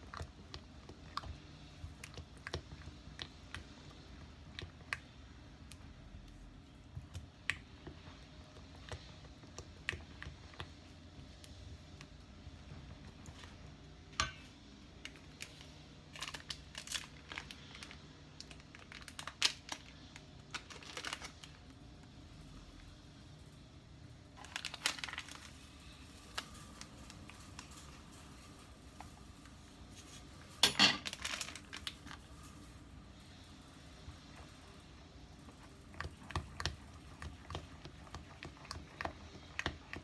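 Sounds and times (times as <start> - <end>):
crinkling: 15.0 - 21.8, 24.4 - 32.8.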